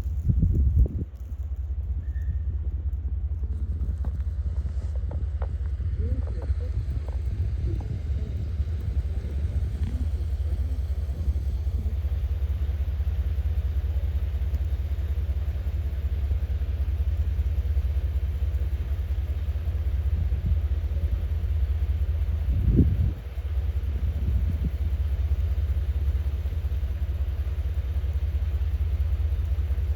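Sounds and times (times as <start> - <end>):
wind buffeting microphone: 0.0 - 1.5, 2.2 - 13.4, 22.3 - 24.9.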